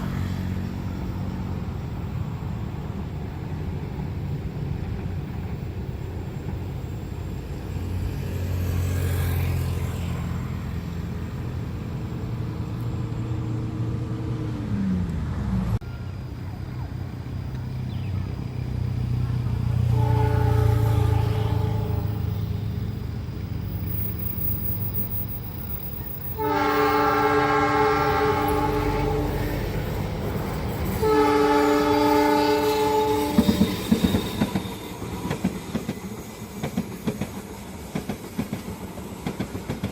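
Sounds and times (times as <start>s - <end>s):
train rumbling on rails: 0.0s - 39.9s
train horn blasts: 19.8s - 22.6s, 26.2s - 29.6s, 30.9s - 35.0s
wheels clacking over rail joints: 33.2s - 39.9s.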